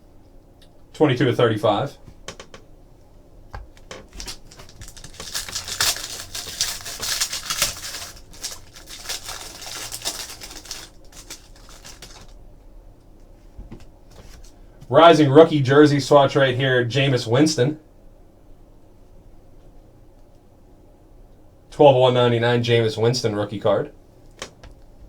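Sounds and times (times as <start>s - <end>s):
trading cards rustling and clicking: 3.6s - 12.4s.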